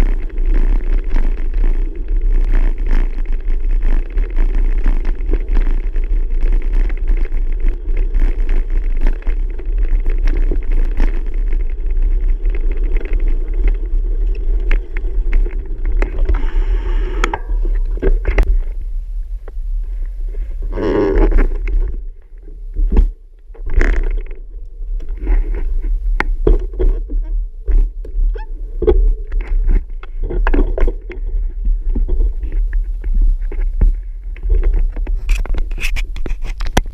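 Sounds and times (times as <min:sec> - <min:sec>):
bicycle knocks and rattles: 0:00.0 - 0:16.6, 0:22.8 - 0:24.4
wind rumbling on microphone: 0:00.0 - 0:36.9.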